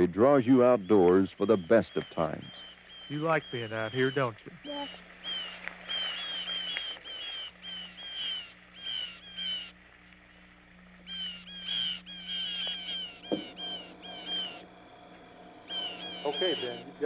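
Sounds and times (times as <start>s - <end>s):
birds chirping: 0.0s - 17.0s
steady low hum: 0.0s - 17.0s
brief knock: 13.3s - 13.5s.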